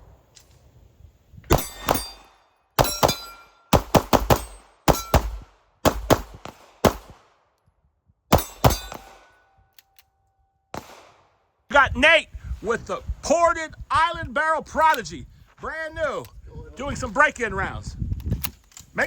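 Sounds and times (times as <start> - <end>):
pistol shots: 1.5 - 7.4, 8.3 - 9.4, 10.8 - 11.3.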